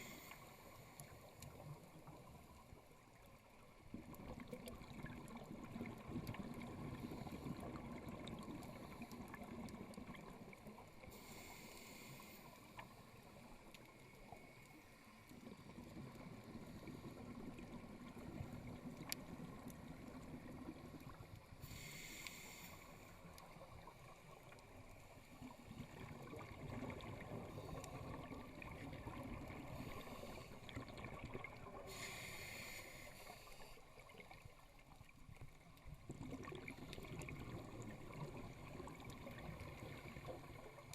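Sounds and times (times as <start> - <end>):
diver breathing through regulator: 0.0 - 0.7, 11.1 - 12.8, 21.6 - 23.1, 31.9 - 33.8
bubbling and gurgling: 1.3 - 11.1, 15.3 - 21.6, 23.3 - 32.0, 33.9 - 40.9.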